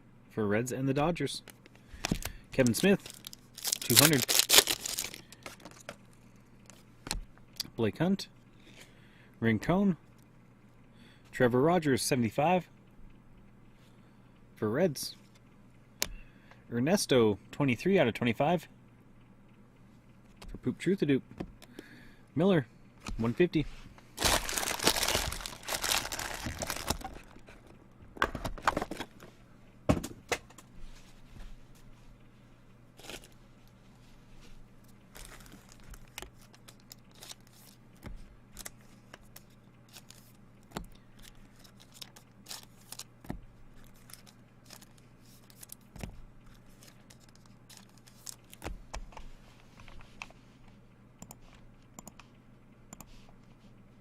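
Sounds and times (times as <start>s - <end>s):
faint steady hum: 0.0s - 54.0s
cards clicking and rustling: 1.4s - 6.0s, 24.2s - 29.3s, 35.1s - 49.3s
wrapper tearing and crumpling: 2.1s - 6.0s, 24.2s - 27.4s, 35.2s - 37.8s, 41.6s - 43.1s, 46.9s - 48.6s.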